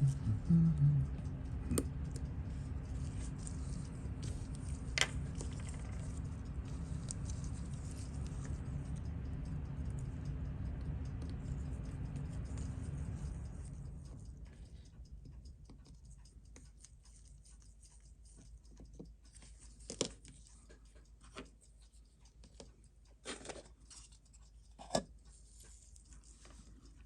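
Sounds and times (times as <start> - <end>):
low hum: 0.0 - 16.3
small tools clicking and tapping: 3.0 - 9.0, 15.6 - 27.0.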